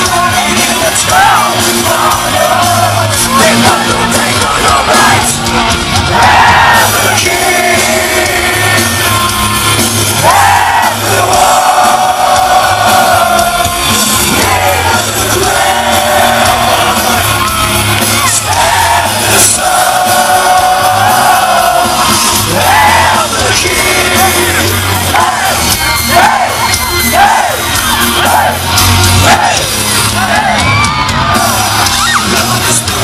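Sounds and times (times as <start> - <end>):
man singing: 0.0 - 5.7, 6.8 - 17.6, 18.2 - 26.4, 32.0 - 33.0
heavy metal band playing live: 0.0 - 33.0.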